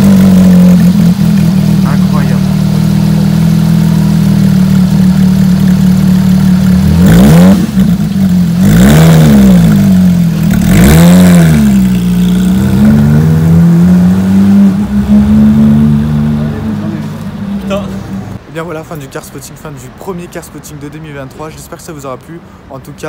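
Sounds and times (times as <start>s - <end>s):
sports car engine revving: 0.0s - 18.4s.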